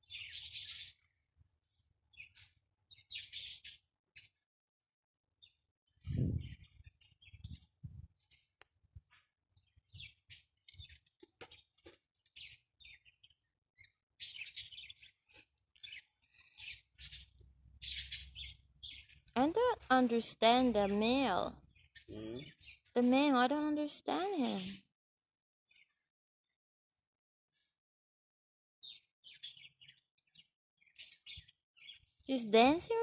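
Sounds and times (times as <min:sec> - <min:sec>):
parrots chirping: 0:15.8 - 0:19.3.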